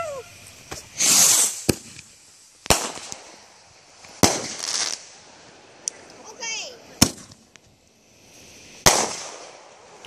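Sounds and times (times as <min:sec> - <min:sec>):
crackling hiss: 0:00.0 - 0:10.0
firework bangs with hiss: 0:00.0 - 0:10.0.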